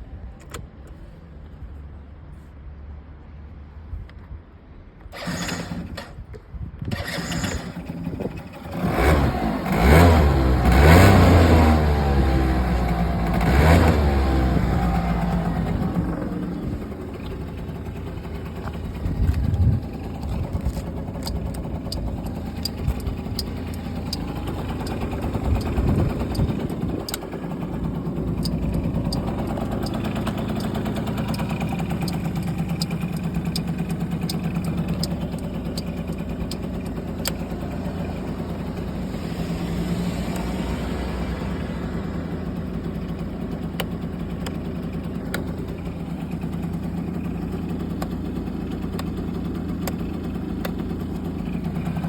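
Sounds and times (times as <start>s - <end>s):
scooter engine idling: 5.1s - 52.0s
faint sharp ticks: 28.4s - 37.4s.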